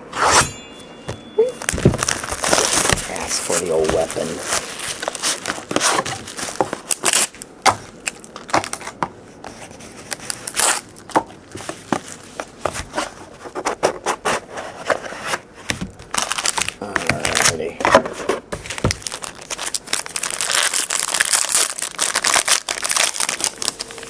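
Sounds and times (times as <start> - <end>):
blade cutting plastic wrap: 1.6 - 9.0, 10.0 - 13.2, 15.7 - 17.7, 18.6 - 24.0
plastic crinkling and tearing: 1.6 - 13.6, 15.9 - 18.0, 18.6 - 24.0.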